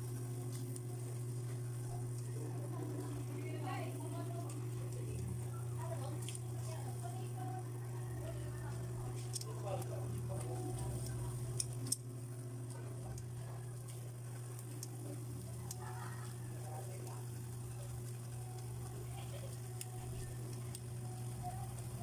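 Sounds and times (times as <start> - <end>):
steady low hum: 0.0 - 22.0
tongs clicking: 11.0 - 12.0.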